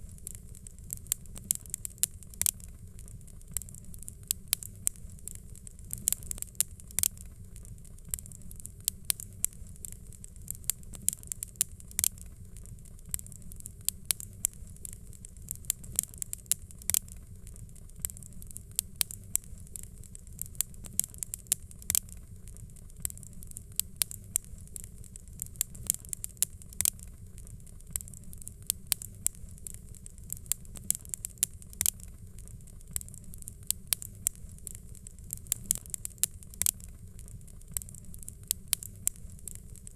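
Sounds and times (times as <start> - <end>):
fire crackling and popping: 0.0 - 39.9
low steady rumble: 0.0 - 39.9.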